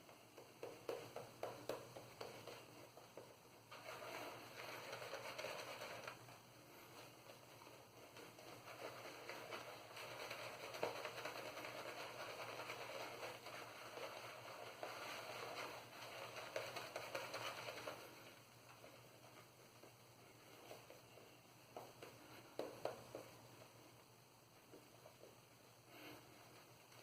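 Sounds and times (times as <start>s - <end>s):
shaving brush lather crackling: 8.1s - 18.3s.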